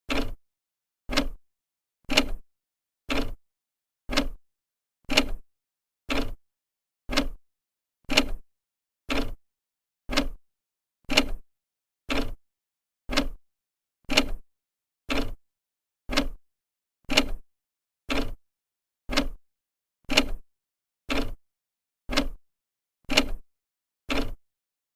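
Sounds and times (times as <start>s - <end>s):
clock ticking: 0.1s - 0.4s, 1.1s - 1.4s, 3.1s - 3.4s, 4.1s - 4.4s, 6.1s - 6.4s, 7.1s - 7.4s, 9.1s - 9.4s, 10.1s - 10.4s, 12.1s - 12.4s, 13.1s - 13.4s, 15.1s - 15.4s, 16.1s - 16.4s, 18.1s - 18.4s, 19.1s - 19.4s, 21.1s - 21.4s, 22.1s - 22.4s, 24.1s - 24.4s.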